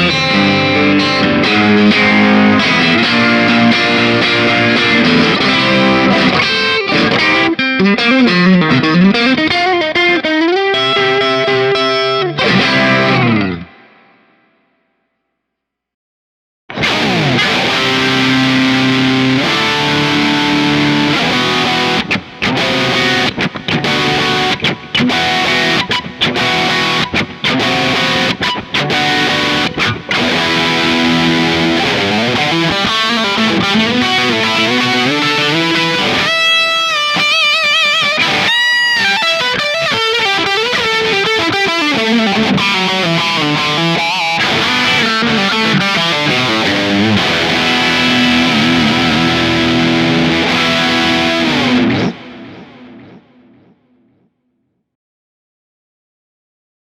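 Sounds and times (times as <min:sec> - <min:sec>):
electric guitar through an amp: 0:00.0 - 0:14.8, 0:16.7 - 0:54.2.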